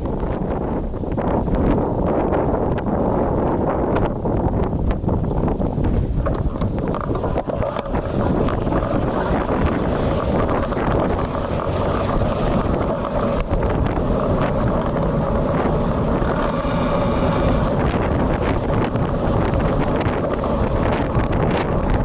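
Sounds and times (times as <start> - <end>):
wind buffeting microphone: 0.0 - 22.0
tyres on wet road: 6.0 - 22.0.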